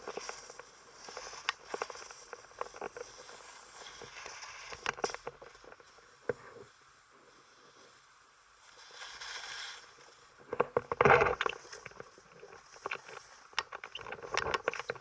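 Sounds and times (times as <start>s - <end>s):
scraping and crunching over rough ground: 10.5s - 15.0s.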